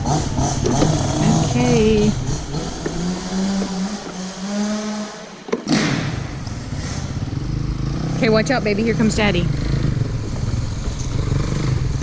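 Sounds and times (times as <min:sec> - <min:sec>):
dirt bike engine revving: 0:00.0 - 0:12.0
sharp knock: 0:05.5 - 0:06.4.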